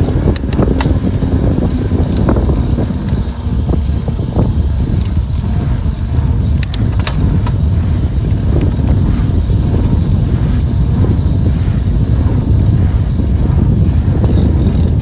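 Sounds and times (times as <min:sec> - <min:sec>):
wind buffeting microphone: 0:00.0 - 0:15.0
sharp clicks: 0:00.3 - 0:01.0.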